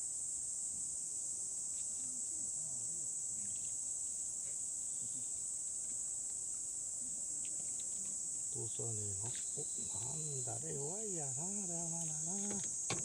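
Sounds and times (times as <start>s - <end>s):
insect chorus chirring: 0.0s - 13.0s
faint voices: 6.6s - 12.8s.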